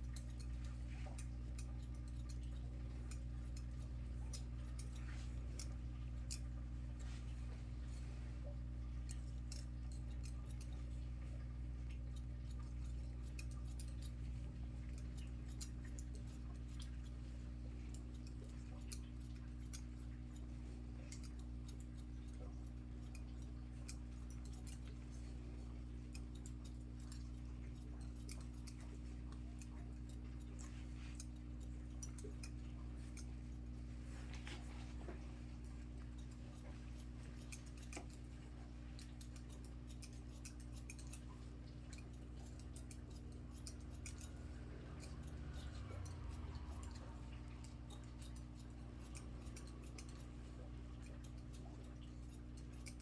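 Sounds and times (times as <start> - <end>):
scissors snipping hair: 0.0 - 7.9, 8.6 - 53.0
steady low hum: 0.0 - 53.0.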